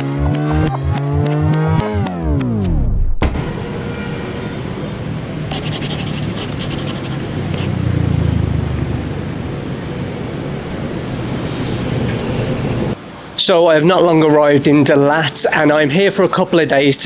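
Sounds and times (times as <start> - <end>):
street traffic noise: 3.4 - 13.4.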